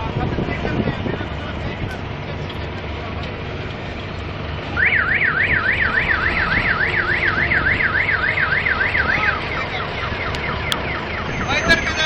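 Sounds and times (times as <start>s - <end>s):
low engine and traffic rumble: 0.0s - 12.0s
electronic siren warbling: 4.8s - 12.0s.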